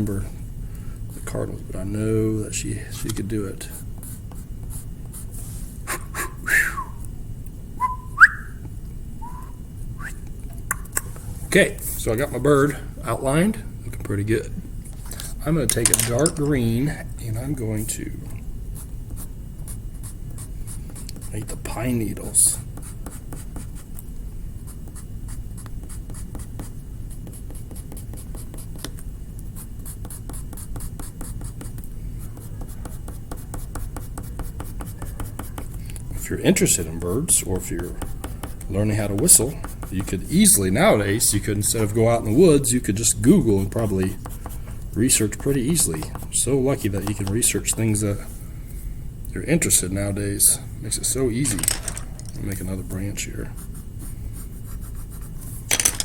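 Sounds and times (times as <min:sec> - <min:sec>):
person whistling bird call: 0:05.9 - 0:07.0, 0:07.8 - 0:08.6, 0:09.2 - 0:10.2.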